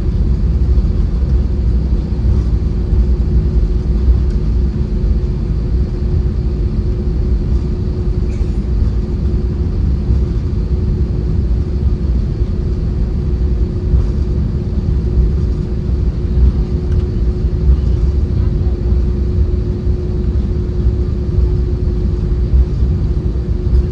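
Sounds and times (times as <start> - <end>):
jet engines rumbling: 0.0 - 23.9
steady cabin hum: 0.0 - 23.9.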